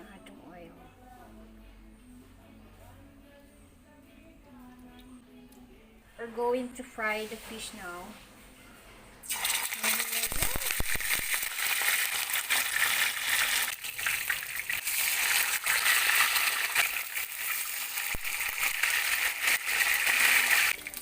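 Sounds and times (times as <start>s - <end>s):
fish frying in hot oil: 9.3s - 21.0s.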